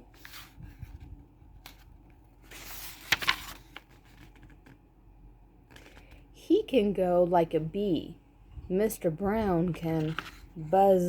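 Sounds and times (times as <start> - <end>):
paper page rustling: 0.1 - 4.8, 9.8 - 10.5.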